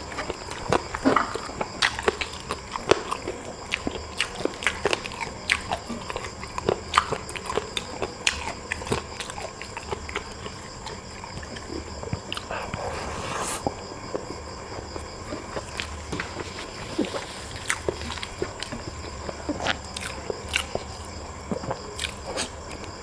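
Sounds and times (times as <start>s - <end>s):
person biting and chewing food: 15.3s - 22.8s.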